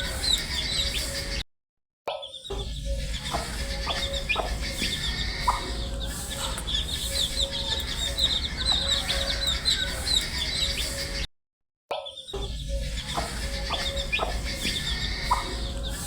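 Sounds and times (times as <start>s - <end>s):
baby chicks peeping: 0.0s - 1.4s, 2.4s - 11.2s, 12.2s - 16.0s
steady low hum: 2.6s - 11.2s, 12.6s - 16.0s.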